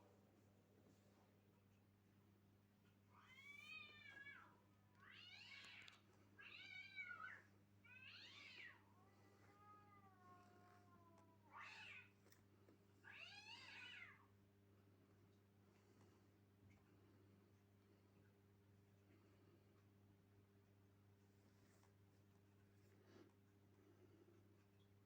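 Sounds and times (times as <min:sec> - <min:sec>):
low electrical hum: 0:00.0 - 0:25.0
cat meowing: 0:03.1 - 0:12.2, 0:13.0 - 0:14.3.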